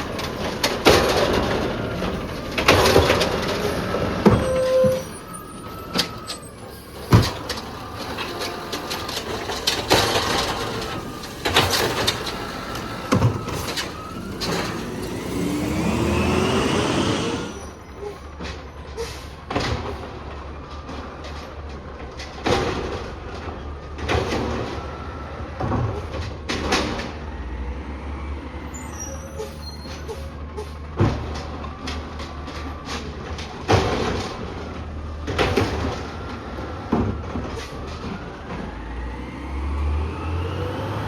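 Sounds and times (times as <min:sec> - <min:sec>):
engine and hydraulics whine: 0:00.0 - 0:18.6, 0:35.8 - 0:41.0.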